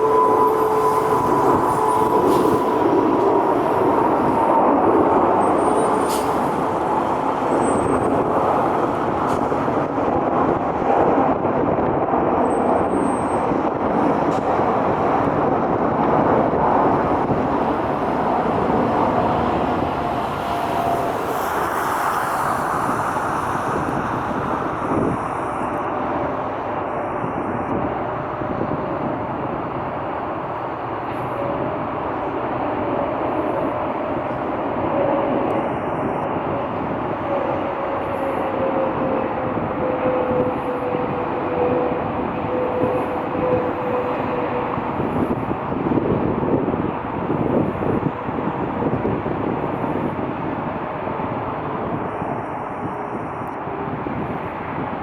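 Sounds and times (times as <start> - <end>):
passing vehicle rumble: 14.2 - 52.1.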